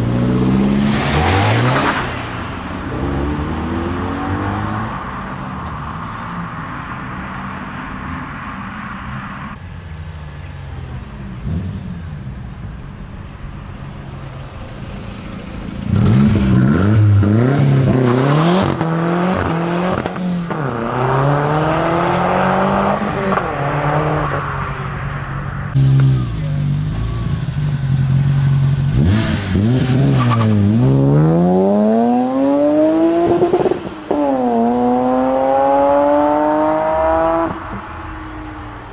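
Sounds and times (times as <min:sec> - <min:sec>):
car engine revving and accelerating: 0:00.0 - 0:06.2, 0:15.2 - 0:38.9
car engine running steadily: 0:24.5 - 0:29.2.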